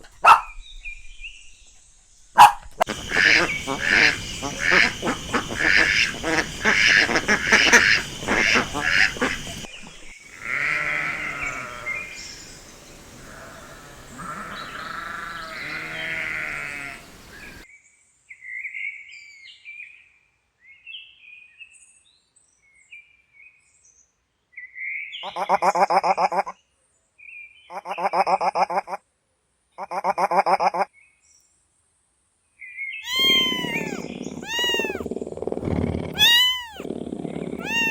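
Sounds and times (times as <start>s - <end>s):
loud quavering animal calls: 0.0s - 0.5s, 2.4s - 17.6s, 33.0s - 37.9s
farm animals bleating: 2.8s - 17.6s, 33.1s - 37.9s.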